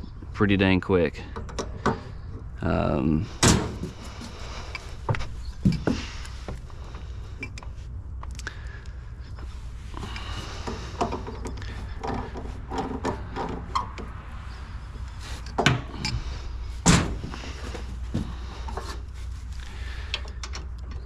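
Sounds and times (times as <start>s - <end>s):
steady low hum: 0.0s - 21.0s
hose fittings and tools clattering: 10.0s - 14.1s.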